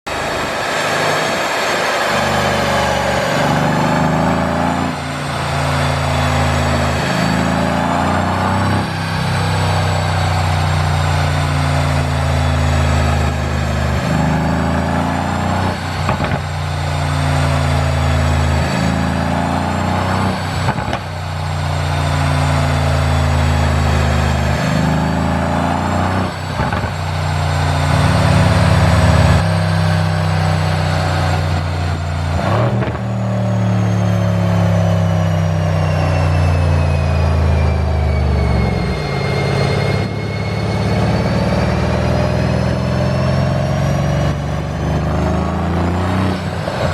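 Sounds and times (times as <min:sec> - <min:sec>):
exhaust cracks: 0:00.1 - 0:33.9
car engine revving: 0:00.1 - 0:46.9.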